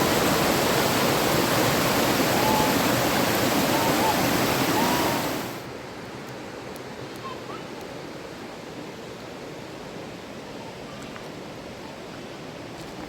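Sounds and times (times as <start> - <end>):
river water rushing: 0.0 - 6.0.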